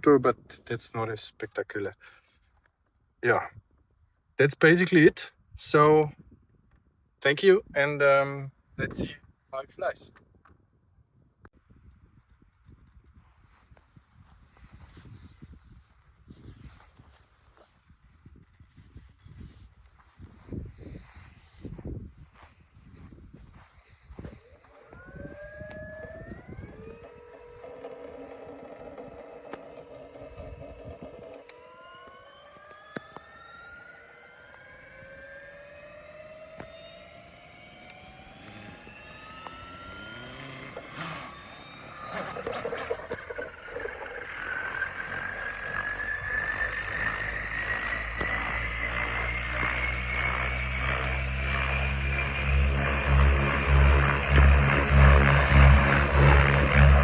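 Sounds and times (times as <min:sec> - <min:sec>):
electric motor whine rising: 0:23.5 - 0:57.0
helicopter rotor beat: 0:24.7 - 0:57.0.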